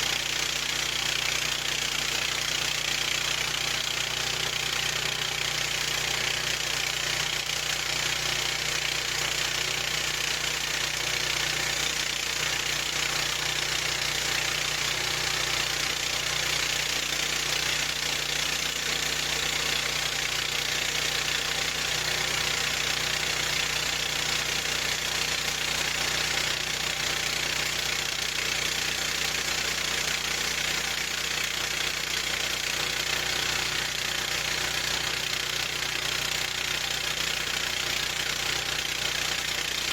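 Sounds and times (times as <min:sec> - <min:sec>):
gasoline engine running steadily: 0:00.0 - 0:39.9.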